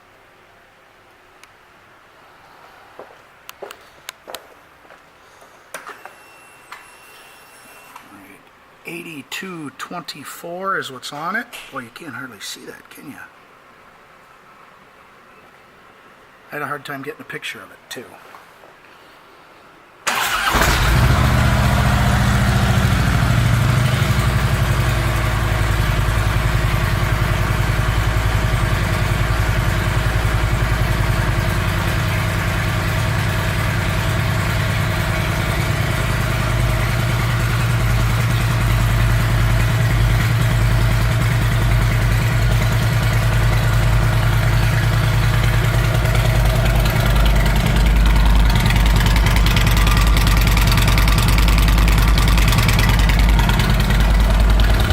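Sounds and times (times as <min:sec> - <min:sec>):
motorcycle engine starting and idling: 0:20.1 - 0:54.9.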